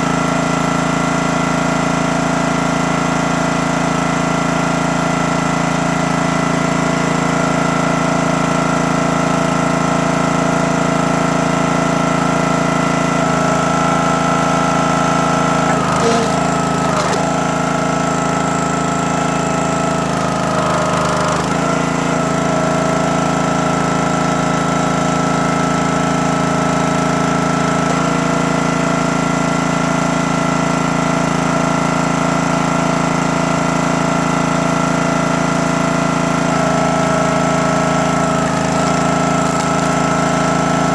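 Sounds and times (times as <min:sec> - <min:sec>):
small gas engine running: 0:00.0 - 0:40.9.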